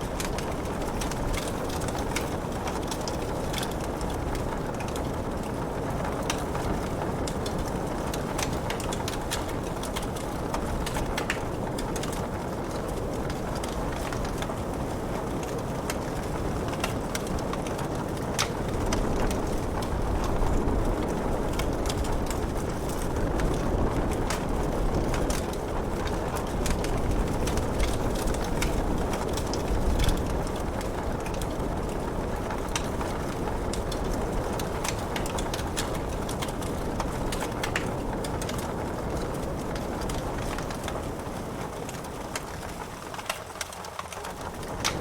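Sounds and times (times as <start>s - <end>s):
wood fire crackling: 0.0s - 45.0s
rain hissing: 44.5s - 45.0s.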